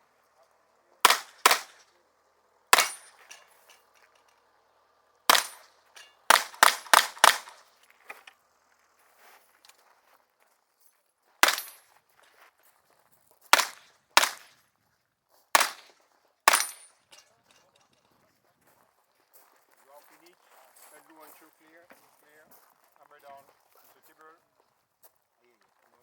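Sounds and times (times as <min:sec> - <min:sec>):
revolver shots: 0:01.1 - 0:01.8, 0:02.8 - 0:03.3, 0:05.3 - 0:05.7, 0:11.4 - 0:11.8.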